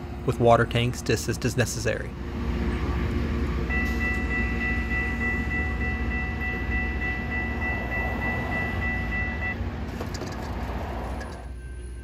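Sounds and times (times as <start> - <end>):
rail grinding train rumbling: 0.0 - 12.0
steady high-pitched tone: 3.7 - 9.6.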